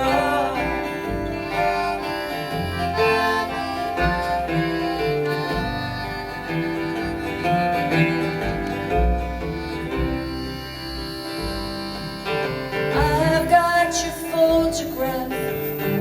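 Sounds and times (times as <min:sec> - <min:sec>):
live band playing: 0:00.0 - 0:16.0
pulsing bass line: 0:00.0 - 0:16.0.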